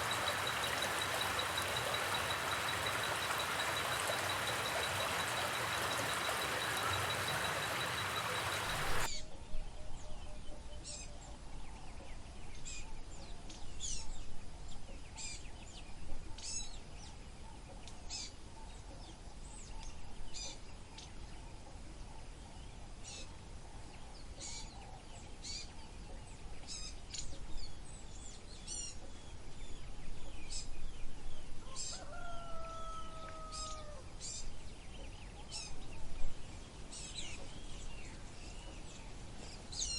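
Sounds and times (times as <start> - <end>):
birds chirping: 0.0 - 9.1
faint high whine: 0.0 - 9.1
long low bird call: 0.0 - 9.1
steady rushing noise: 0.0 - 9.1.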